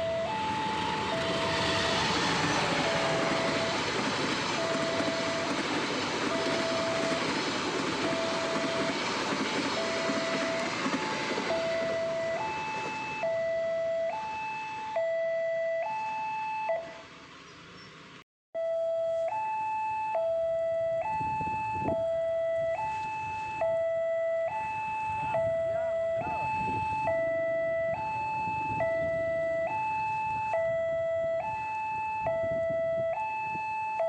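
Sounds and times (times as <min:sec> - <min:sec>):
passing train rumble: 0:00.0 - 0:15.0, 0:16.7 - 0:18.2, 0:25.0 - 0:30.4
level-crossing two-tone alarm: 0:00.0 - 0:17.1, 0:18.6 - 0:34.0.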